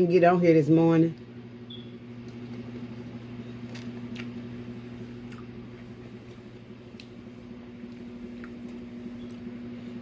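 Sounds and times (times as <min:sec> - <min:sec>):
low electrical hum: 0:00.0 - 0:10.0
person chewing food: 0:02.2 - 0:10.0.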